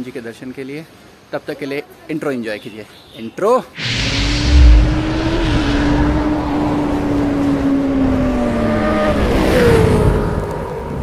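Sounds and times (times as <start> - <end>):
rush of noise: 3.8 - 9.9.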